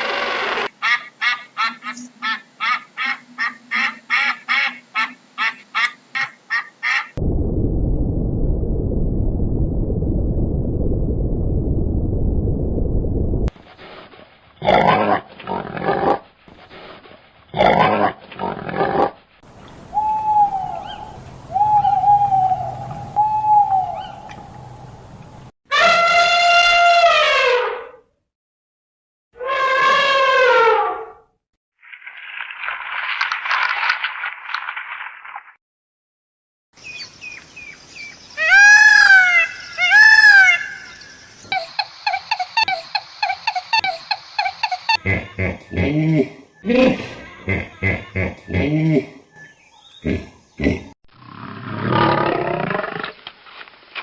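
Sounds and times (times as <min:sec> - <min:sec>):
bird chirps: 0:49.3 - 0:50.7
harsh growl-like animal calls: 0:50.0 - 0:53.1.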